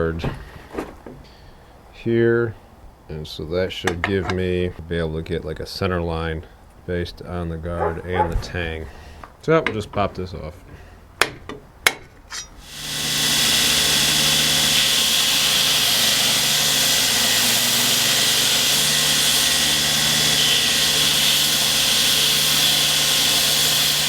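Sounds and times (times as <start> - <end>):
belt grinder grinding wood: 12.6 - 24.0.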